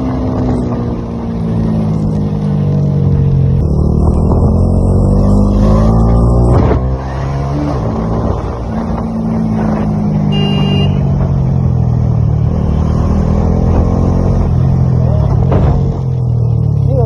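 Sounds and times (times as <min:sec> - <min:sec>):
high-pitched beep: 0:10.3 - 0:11.0.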